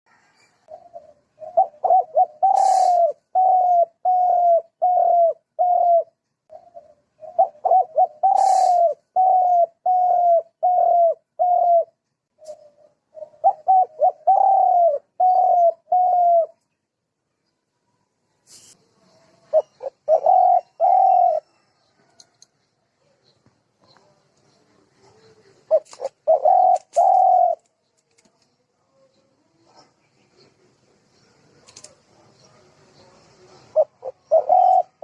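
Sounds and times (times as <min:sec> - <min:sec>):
bird cooing: 0:00.1 - 0:16.6, 0:19.0 - 0:35.0
brief hiss: 0:18.4 - 0:18.8.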